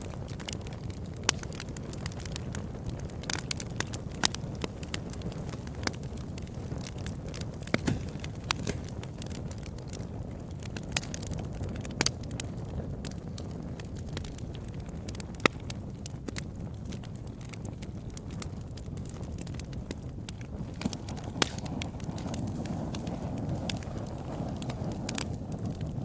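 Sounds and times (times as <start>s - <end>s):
fireplace fire crackling: 0.0s - 26.0s.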